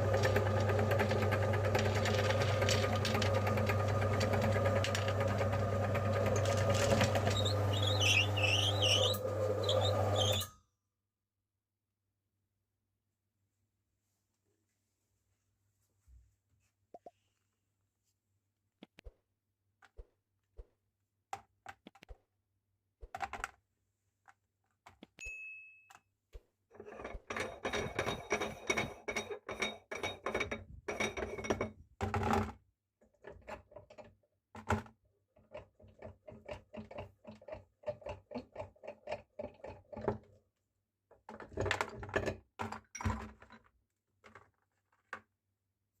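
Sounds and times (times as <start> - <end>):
meat grinder crunching candy: 0.0 - 10.4.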